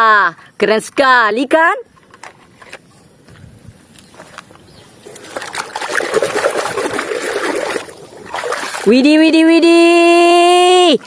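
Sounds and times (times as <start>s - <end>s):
water splashing over plastic toy: 5.1s - 9.0s.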